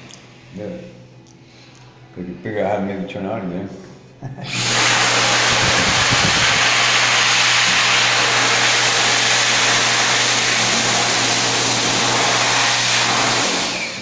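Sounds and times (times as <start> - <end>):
hand dryer air rush: 4.4 - 14.0.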